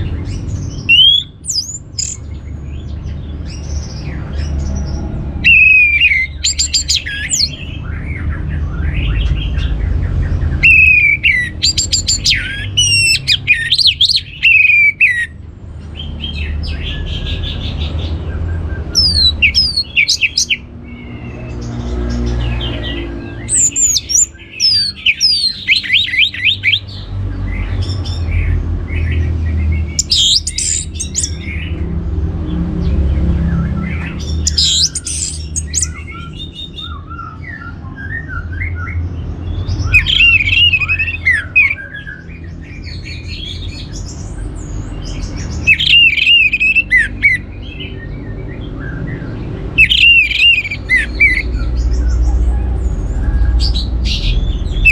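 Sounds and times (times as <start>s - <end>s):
thrush singing whistled trills: 0.0s - 2.9s, 3.5s - 15.4s, 16.0s - 28.4s, 29.5s - 31.9s, 33.4s - 52.4s, 53.2s - 54.9s
steady low rumble: 48.4s - 54.9s.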